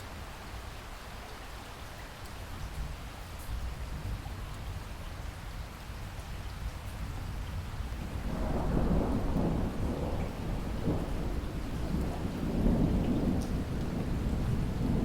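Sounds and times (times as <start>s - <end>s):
steady rain hiss: 0.0s - 15.0s
thunder rumbling low: 7.1s - 15.0s.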